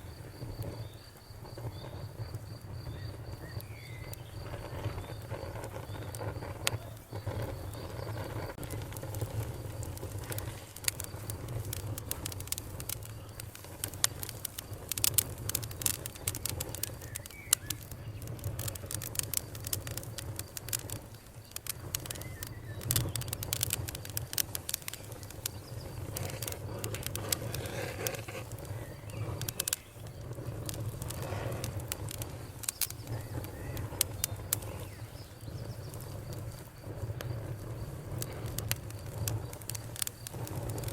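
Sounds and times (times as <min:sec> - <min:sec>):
campfire crackling and popping: 0:00.0 - 0:40.9
low rumble of fire: 0:00.0 - 0:40.9.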